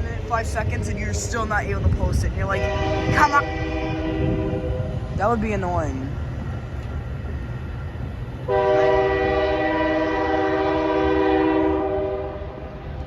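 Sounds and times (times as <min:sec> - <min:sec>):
low train rumble: 0:00.0 - 0:13.0
train horn blast: 0:02.6 - 0:05.1, 0:08.5 - 0:12.7.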